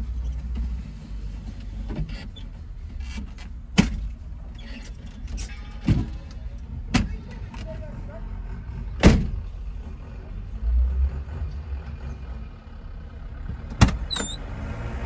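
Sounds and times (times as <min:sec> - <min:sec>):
car engine idling: 0:00.0 - 0:10.7.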